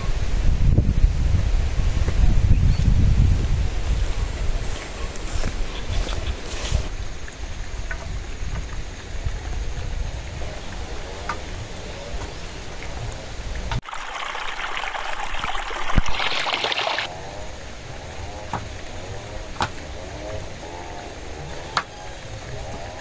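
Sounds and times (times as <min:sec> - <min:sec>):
strong wind buffeting microphone: 0:00.0 - 0:13.8
rain hiss: 0:00.0 - 0:23.0.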